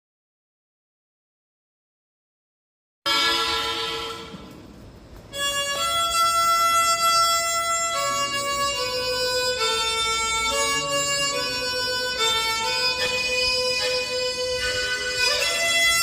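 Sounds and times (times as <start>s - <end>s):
harmonica melody: 3.1s - 4.6s, 5.3s - 16.0s.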